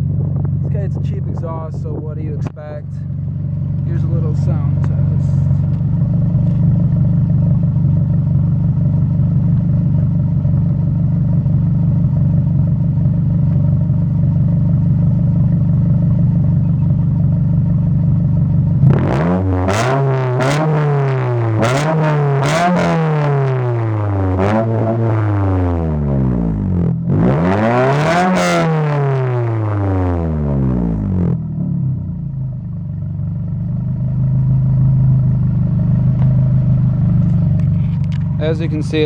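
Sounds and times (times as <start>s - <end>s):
car engine revving: 0.0s - 9.2s, 18.6s - 32.0s, 35.2s - 39.0s
car engine idling: 0.0s - 21.6s, 29.2s - 39.0s.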